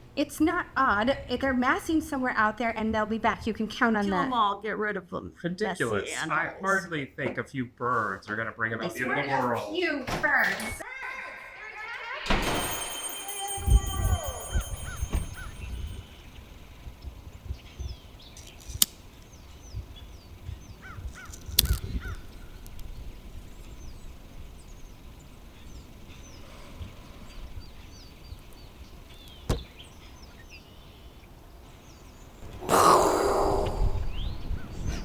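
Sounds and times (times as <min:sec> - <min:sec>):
flock of birds cawing: 0:13.8 - 0:16.4, 0:20.7 - 0:22.8.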